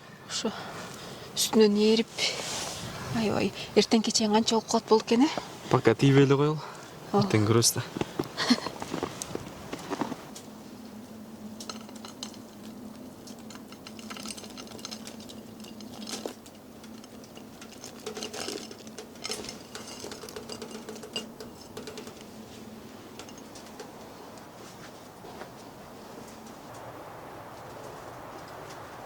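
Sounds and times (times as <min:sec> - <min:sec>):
light clicks and clinks: 0:11.6 - 0:22.5, 0:23.1 - 0:24.5.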